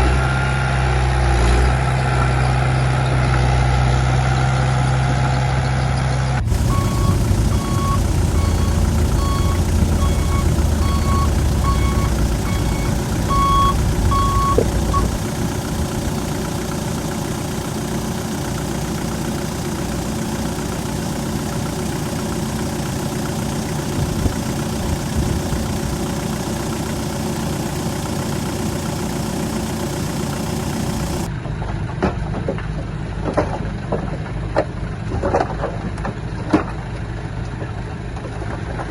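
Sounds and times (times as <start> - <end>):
heavy diesel machinery running: 0.0 - 38.9
backup alarm beeping: 6.4 - 15.2.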